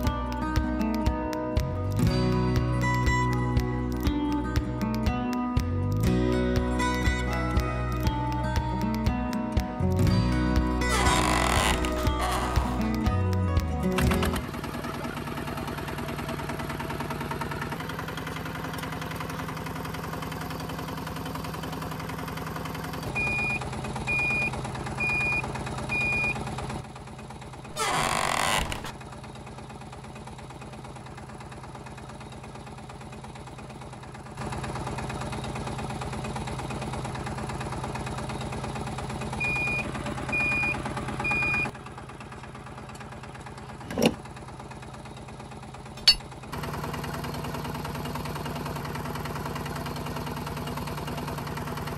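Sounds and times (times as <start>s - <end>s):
small motor humming: 10.8s - 13.0s, 27.7s - 29.0s.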